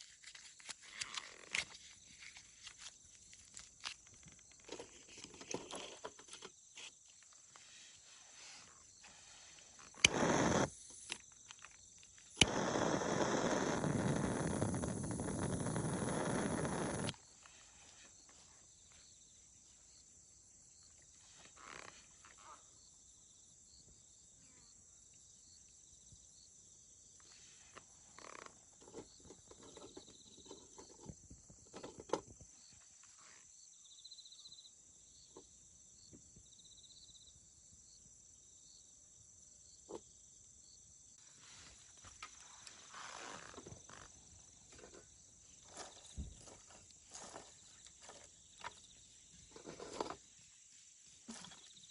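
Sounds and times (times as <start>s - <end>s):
steady high hiss: 7.6s - 11.2s, 12.2s - 18.0s
wood fire crackling and popping: 9.9s - 10.7s, 12.3s - 17.1s.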